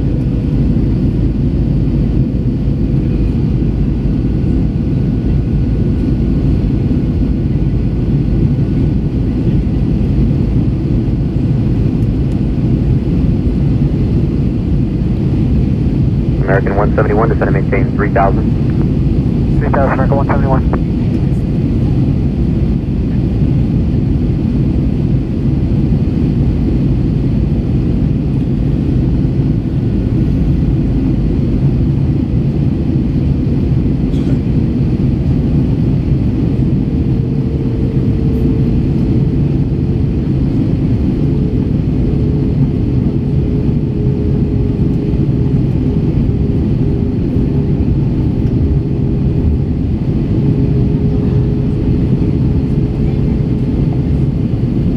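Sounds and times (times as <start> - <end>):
airplane cabin engine rumble: 0.0 - 54.9
faint steady hum: 16.4 - 21.4.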